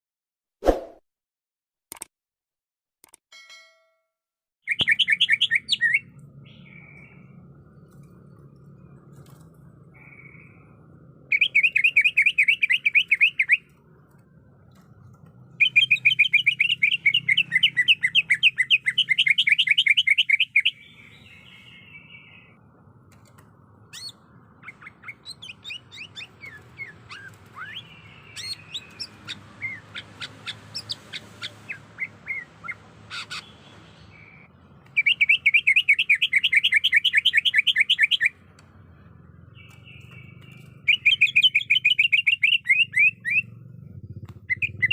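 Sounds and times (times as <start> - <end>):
sharp bird chirps and whistles: 4.6 - 7.3, 10.0 - 10.7, 11.3 - 13.7, 15.5 - 22.6, 23.9 - 38.4, 39.5 - 43.6, 44.4 - 44.9
bird trilling: 11.3 - 13.7, 15.6 - 22.5, 23.9 - 33.5, 34.1 - 38.4, 39.6 - 44.9.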